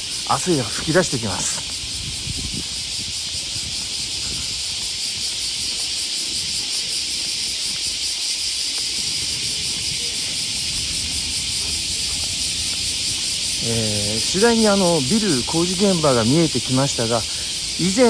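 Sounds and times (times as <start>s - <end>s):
cicadas buzzing: 0.0s - 18.0s
low rumble: 10.4s - 13.7s.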